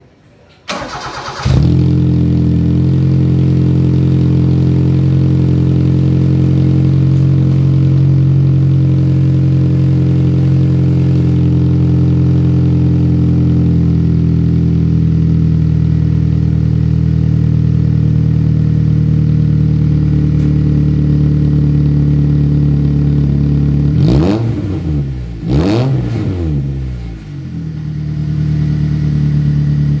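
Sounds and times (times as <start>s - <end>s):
engine revving: 0.7s - 8.8s, 23.8s - 30.0s
car engine idling: 0.7s - 30.0s.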